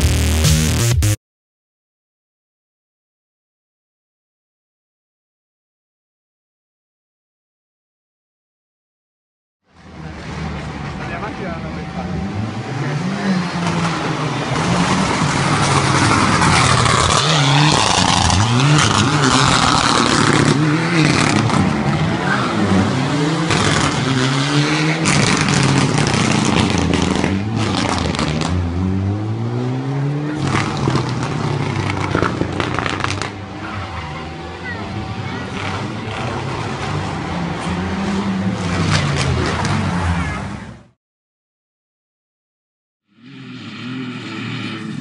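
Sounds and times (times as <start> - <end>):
rally car engine revving: 9.8 - 41.0, 43.1 - 45.0.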